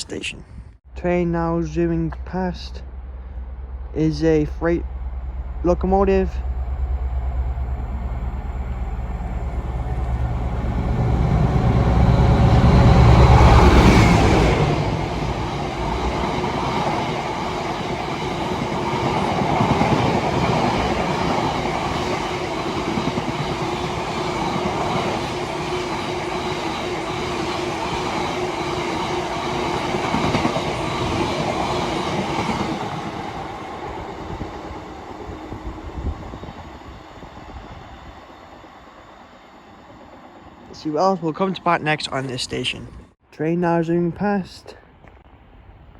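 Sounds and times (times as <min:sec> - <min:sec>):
locomotive rumble: 0:00.8 - 0:43.2
train wagons clacking over rails: 0:01.6 - 0:35.7.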